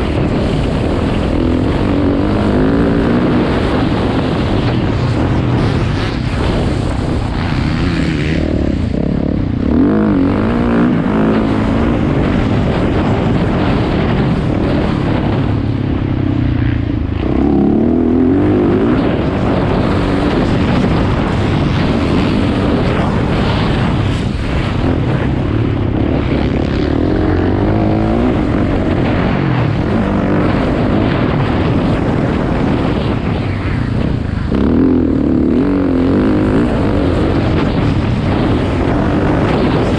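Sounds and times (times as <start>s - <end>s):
dirt bike engine revving: 0.0s - 33.2s, 34.0s - 39.9s.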